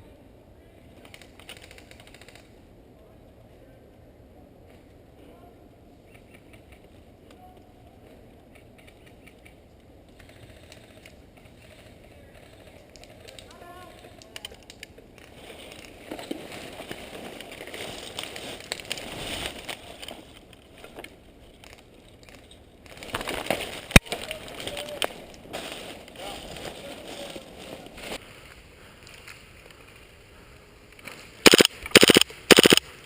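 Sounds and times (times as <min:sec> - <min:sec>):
rustling and crunching: 0:10.2 - 0:30.1
sharp click: 0:31.5 - 0:32.8.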